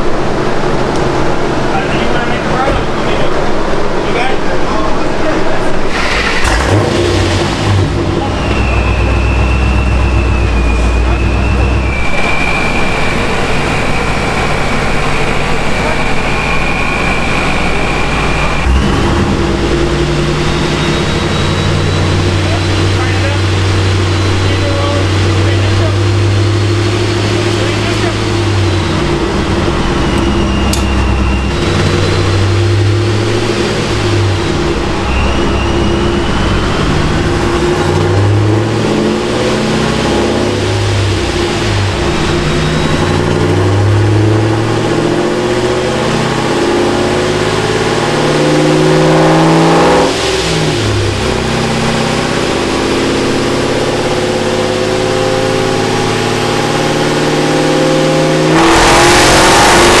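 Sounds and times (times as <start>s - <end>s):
car engine revving: 0.0s - 60.0s.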